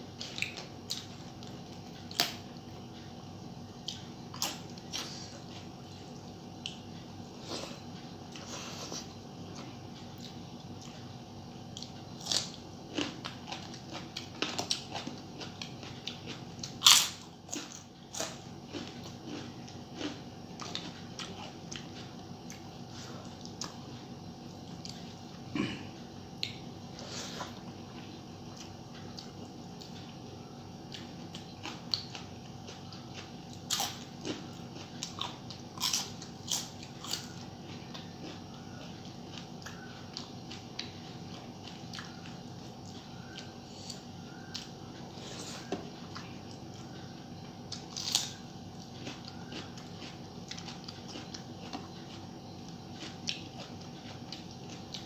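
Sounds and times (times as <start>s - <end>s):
person chewing food: 0.1s - 55.0s.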